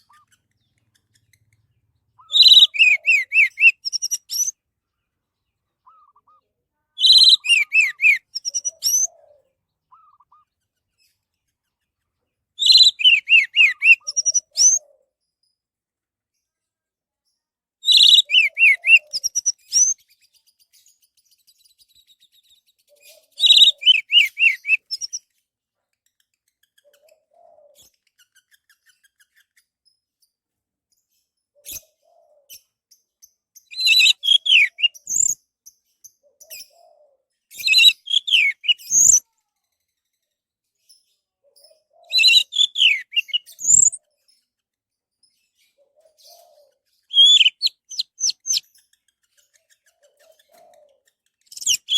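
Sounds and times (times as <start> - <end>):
thrush singing whistled phrases: 2.2 - 4.5, 7.0 - 9.1, 12.6 - 14.8, 17.9 - 20.0, 23.4 - 24.9, 33.8 - 35.3, 37.6 - 39.2, 42.1 - 44.0, 47.1 - 48.6.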